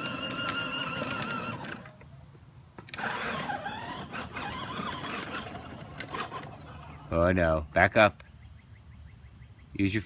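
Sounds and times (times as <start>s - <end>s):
small electric motor whining: 2.9s - 6.6s.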